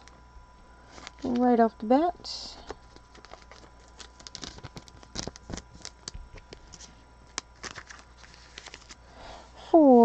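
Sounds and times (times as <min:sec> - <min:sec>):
trading cards clicking and rustling: 0:02.6 - 0:09.0.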